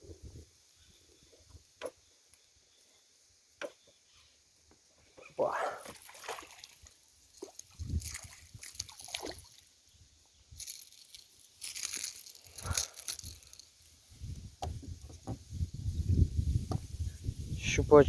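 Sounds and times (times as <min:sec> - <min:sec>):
light water splashes: 0:05.2 - 0:09.9
rustles and clicks: 0:10.6 - 0:14.0.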